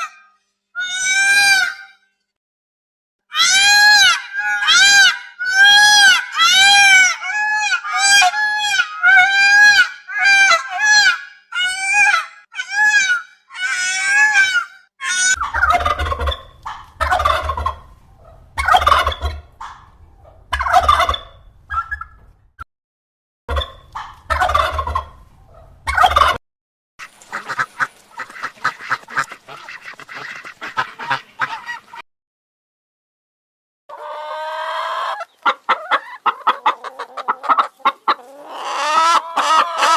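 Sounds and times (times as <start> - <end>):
rough low fowl calls: 3.4 - 22.4, 23.5 - 26.4, 27.3 - 32.0, 33.9 - 39.9
fowl honking calls: 14.0 - 22.3, 23.5 - 26.4, 27.3 - 32.0, 33.9 - 39.9
low hum: 15.5 - 22.6.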